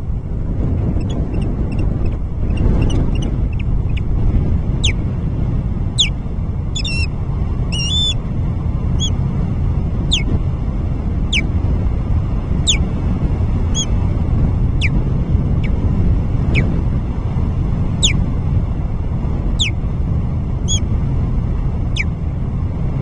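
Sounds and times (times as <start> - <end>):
steady low rumble: 0.0 - 23.0
osprey calling: 4.8 - 5.0, 5.9 - 7.1, 7.7 - 8.2, 9.0 - 9.2, 10.1 - 10.3, 12.6 - 12.8, 13.7 - 13.9, 18.0 - 18.2, 19.6 - 19.8, 20.7 - 20.9.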